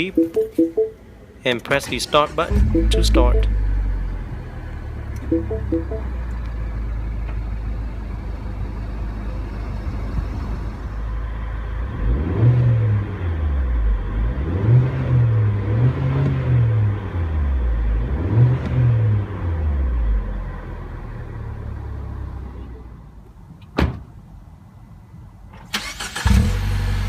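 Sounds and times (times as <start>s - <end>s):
car engine idling and revving: 6.5s - 22.5s.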